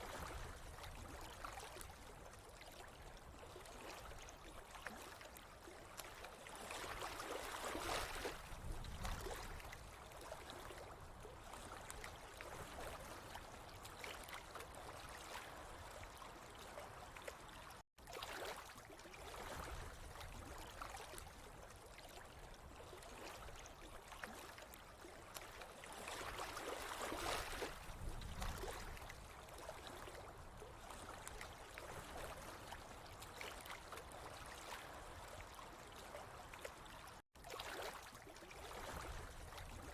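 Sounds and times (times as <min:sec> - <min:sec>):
water flowing and trickling: 0:00.0 - 0:39.9.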